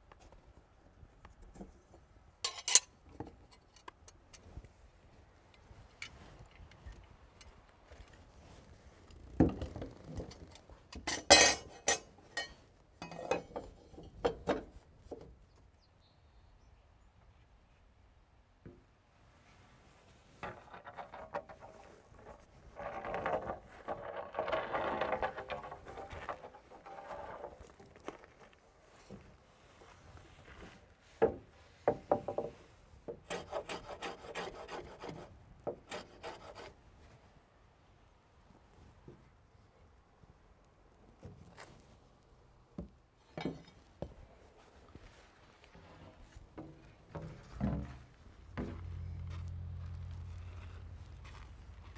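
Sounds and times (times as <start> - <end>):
rasp scraping wood: 33.2 - 36.7.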